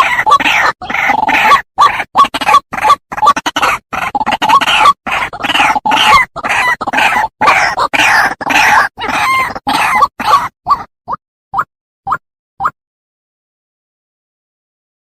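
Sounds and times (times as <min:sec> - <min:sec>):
bird harsh croaking calls: 0:00.0 - 0:10.9.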